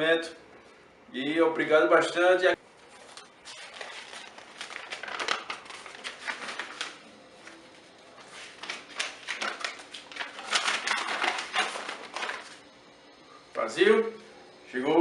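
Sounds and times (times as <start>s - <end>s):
packaging crinkling and rustling: 2.8s - 12.6s.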